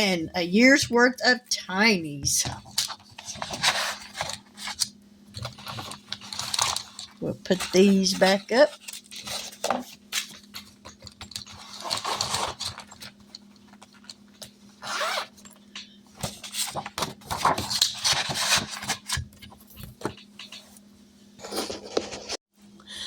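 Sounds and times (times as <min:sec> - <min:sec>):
binder pages rustling: 0:02.4 - 0:14.5, 0:16.2 - 0:20.8.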